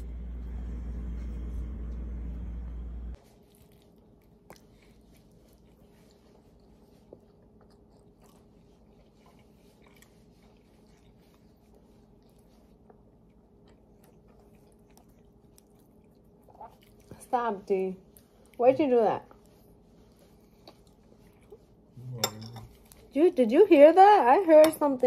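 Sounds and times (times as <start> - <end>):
person chewing: 3.2 - 17.2, 19.4 - 23.1.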